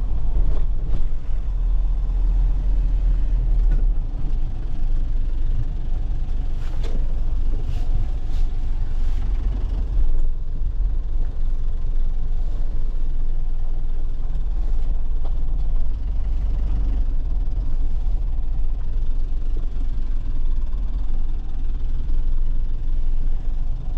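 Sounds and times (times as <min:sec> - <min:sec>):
truck engine droning: 0:00.0 - 0:23.9.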